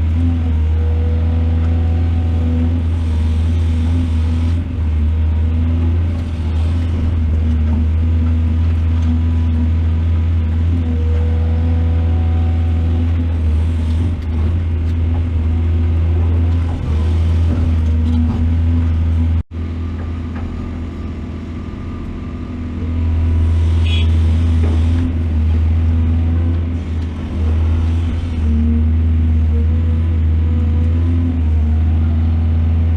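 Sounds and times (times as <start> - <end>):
excavator diesel engine droning: 0.0 - 32.9.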